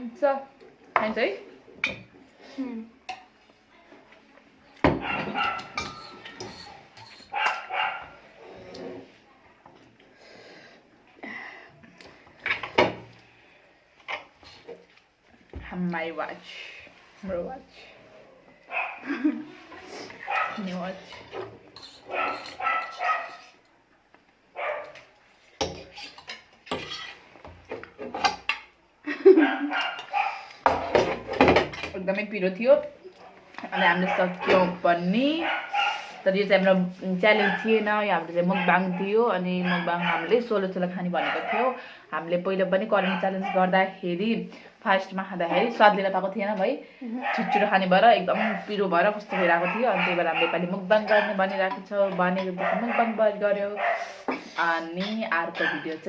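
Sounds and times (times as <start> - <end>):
plates and cutlery clinking: 4.9 - 8.1, 20.3 - 23.6, 25.6 - 28.7, 29.4 - 32.0, 49.3 - 53.2
dog barking: 5.0 - 5.8, 7.3 - 8.2, 18.7 - 19.0, 20.3 - 20.6, 22.1 - 23.5, 24.6 - 25.0, 29.4 - 30.5, 35.4 - 36.2, 37.4 - 37.8, 38.5 - 40.3, 41.2 - 41.8, 43.0 - 43.7, 47.2 - 47.7, 48.4 - 48.7, 49.3 - 51.4, 52.5 - 54.2, 55.6 - 56.0.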